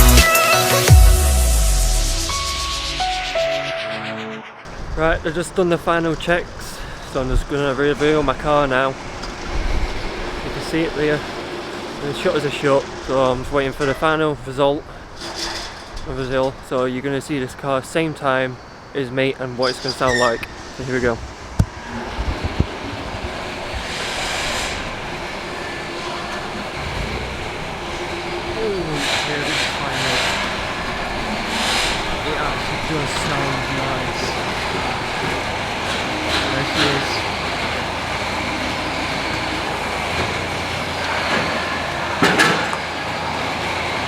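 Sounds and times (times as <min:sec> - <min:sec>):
car engine low rumble: 0:21.9 - 0:42.2
roller shutter door rattling: 0:22.0 - 0:44.0.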